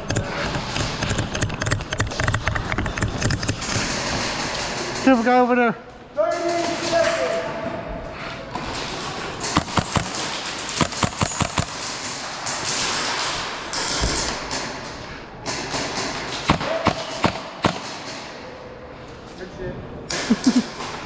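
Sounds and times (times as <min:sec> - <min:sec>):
airsoft gunfire: 0:09.4 - 0:14.8, 0:15.4 - 0:18.3.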